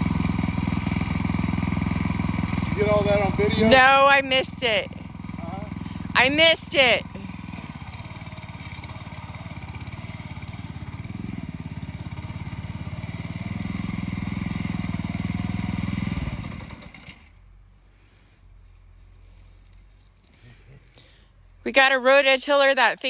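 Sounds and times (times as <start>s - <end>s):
rototiller engine running: 0.0s - 18.1s.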